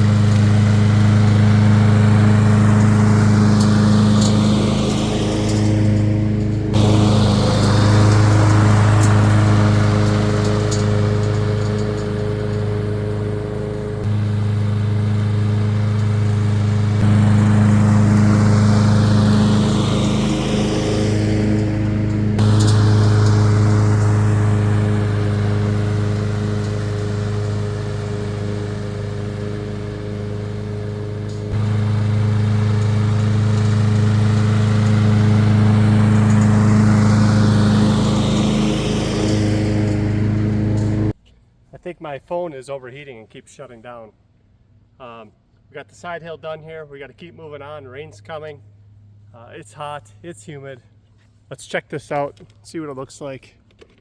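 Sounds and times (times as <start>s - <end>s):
lawn mower engine running: 0.0s - 41.2s.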